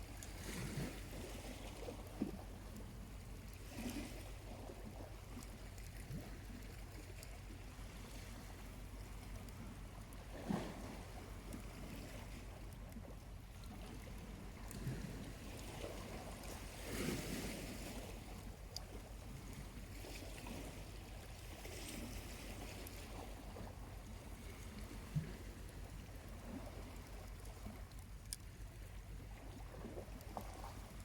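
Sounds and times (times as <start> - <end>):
small waves washing onto beach: 0.0 - 31.0
campfire ticks: 26.8 - 29.0.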